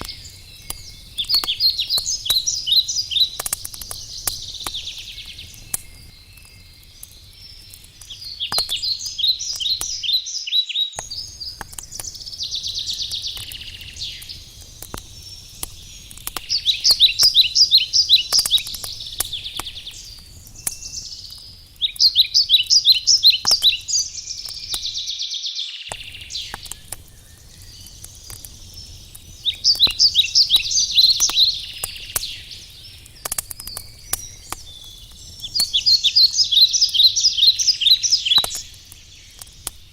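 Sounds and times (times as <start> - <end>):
songbird trilling: 0.0 - 6.0, 8.1 - 11.6, 15.8 - 21.1, 21.8 - 26.7, 29.4 - 32.5, 33.8 - 38.7
wood fire crackling: 0.0 - 25.3, 25.9 - 39.9.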